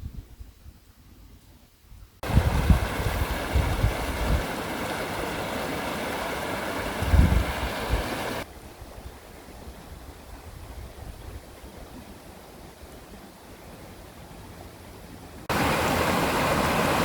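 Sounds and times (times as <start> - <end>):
storm wind and rain: 1.9 - 17.0
wind buffeting microphone: 2.2 - 12.0.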